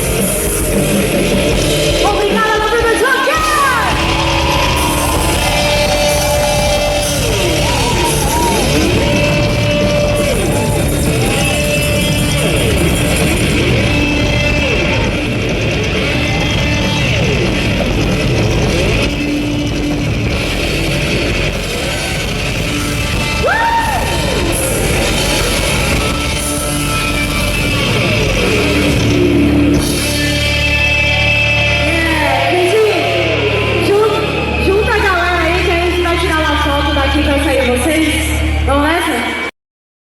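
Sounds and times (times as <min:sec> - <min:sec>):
live rock band playing: 0:00.0 - 0:38.7
vocals: 0:01.9 - 0:04.3, 0:31.8 - 0:39.5.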